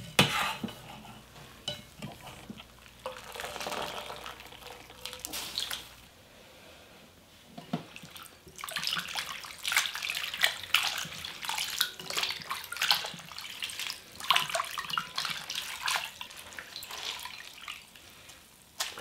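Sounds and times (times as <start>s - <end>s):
water dripping: 8.0s - 17.8s
water sloshing in bowl: 8.0s - 17.8s.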